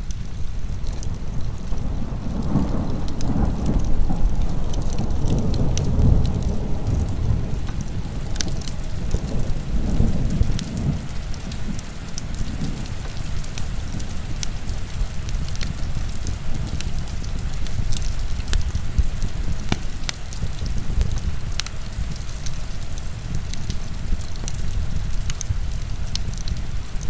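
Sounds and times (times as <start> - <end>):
heavy rain: 0.0 - 27.0
wood fire crackling: 0.0 - 27.0
rolling thunder: 0.6 - 22.3.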